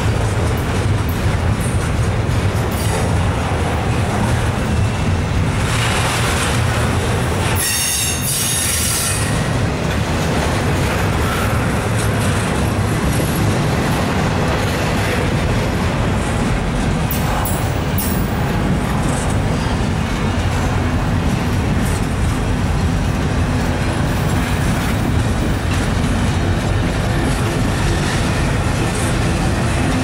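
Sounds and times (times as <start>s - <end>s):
rumble of steel wheels on rails: 0.0s - 30.0s
high-pitched metallic squeal: 7.5s - 9.5s.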